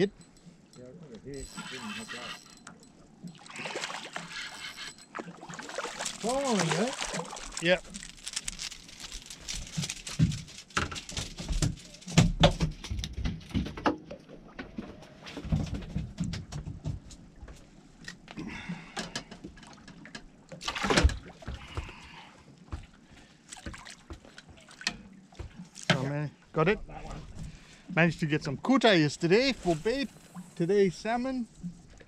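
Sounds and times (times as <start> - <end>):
rustling handling noise: 3.4 - 12.4.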